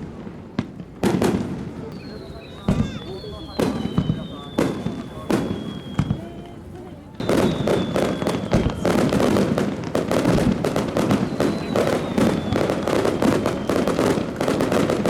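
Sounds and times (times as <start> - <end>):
fireworks bangs and crackles: 0.0 - 15.0
faint high whistle: 1.9 - 6.6, 7.2 - 9.4, 11.0 - 14.3.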